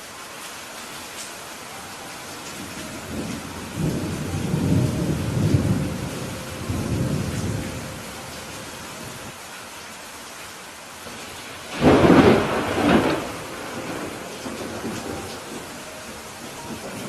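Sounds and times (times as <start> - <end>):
steady rain hiss: 0.0 - 17.0
thunder rumbling: 2.3 - 9.3, 11.2 - 17.0.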